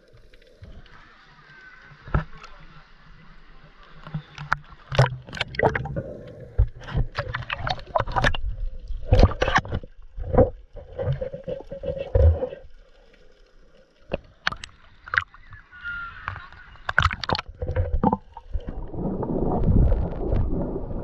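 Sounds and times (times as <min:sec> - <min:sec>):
underwater clicks and knocks: 0:04.0 - 0:12.6, 0:14.1 - 0:15.6, 0:16.2 - 0:18.8
underwater breathing bubbles: 0:05.4 - 0:08.2.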